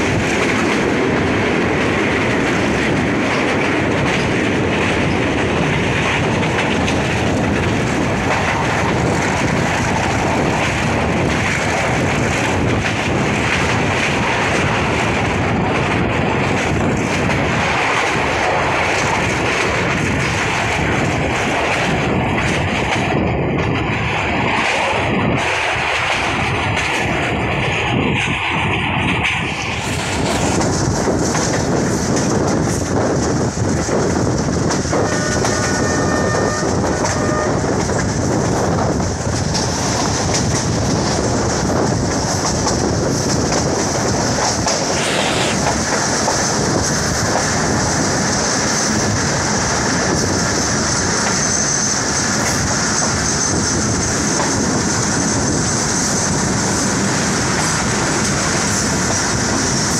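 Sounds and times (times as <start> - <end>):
rumble and rattle of train wheels: 0.0 - 59.9.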